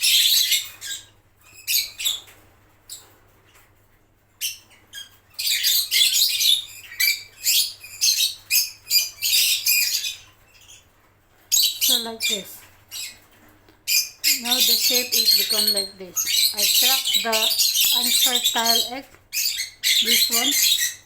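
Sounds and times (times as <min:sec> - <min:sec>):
lovebirds chirping: 0:04.4 - 0:21.0.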